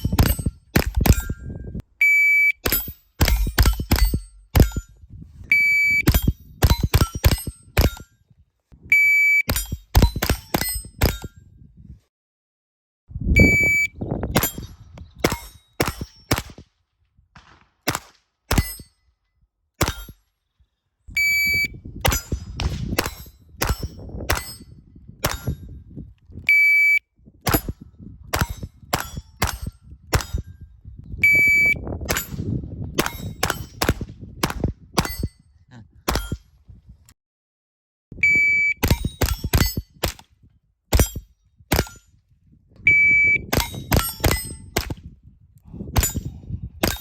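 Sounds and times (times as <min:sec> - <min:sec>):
rapid rifle shots: 0:00.0 - 0:01.2, 0:02.6 - 0:04.8, 0:15.2 - 0:16.7, 0:17.4 - 0:18.8, 0:22.1 - 0:24.6
shot timer beep: 0:02.0 - 0:02.8, 0:05.5 - 0:06.3, 0:08.9 - 0:09.6, 0:13.4 - 0:14.0, 0:21.2 - 0:21.8, 0:26.5 - 0:27.0, 0:31.2 - 0:31.8, 0:38.2 - 0:39.0, 0:42.9 - 0:43.6.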